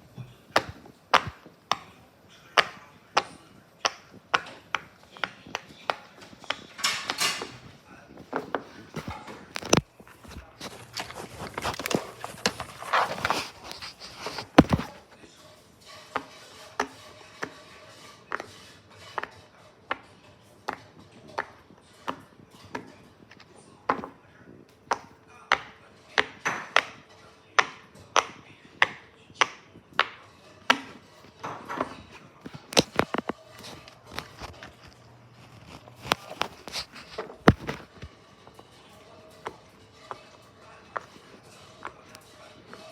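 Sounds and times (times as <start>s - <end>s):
rustling: 4.2s - 15.2s, 30.6s - 38.7s.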